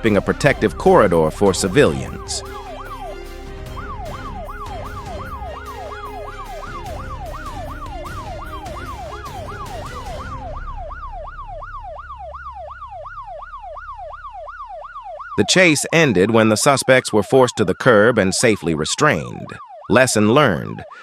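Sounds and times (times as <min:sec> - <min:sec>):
low vehicle rumble: 0:00.0 - 0:15.4
background music: 0:00.0 - 0:15.6
police siren yelping: 0:00.0 - 0:21.0.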